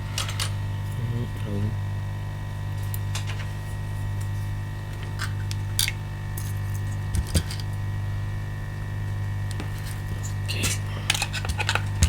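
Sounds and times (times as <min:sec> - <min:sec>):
electrical hum: 0:00.0 - 0:12.0
hand tools clicking on a workbench: 0:09.5 - 0:12.0.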